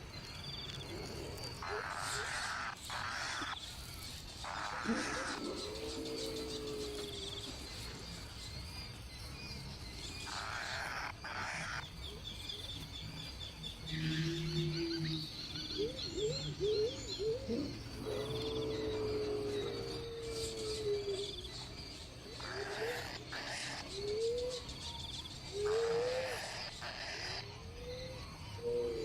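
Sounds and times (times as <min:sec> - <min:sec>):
birds calling: 0:00.0 - 0:29.0.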